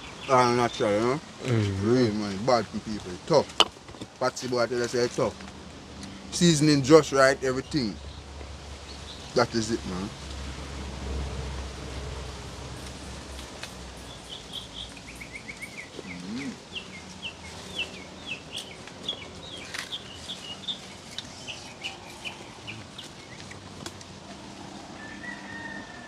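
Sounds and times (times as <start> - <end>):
outdoor background noise: 0.0 - 26.0
bird chirping: 6.4 - 10.1, 14.0 - 23.7.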